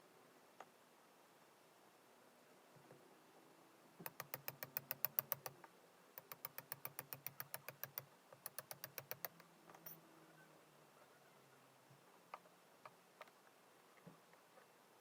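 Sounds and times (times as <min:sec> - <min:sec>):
rapid sharp clicks: 0:04.0 - 0:05.6, 0:06.2 - 0:09.5.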